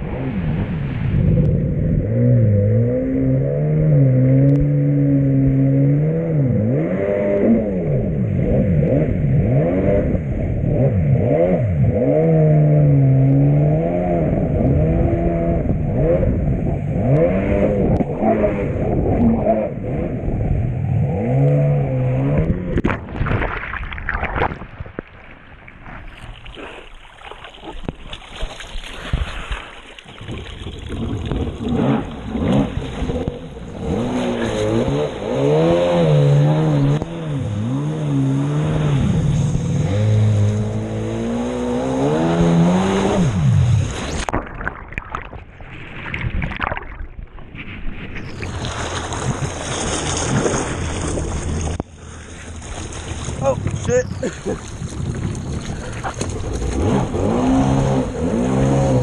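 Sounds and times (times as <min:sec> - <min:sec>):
jet ski engine revving: 0:00.0 - 0:22.8, 0:30.6 - 0:44.3, 0:55.6 - 0:59.0.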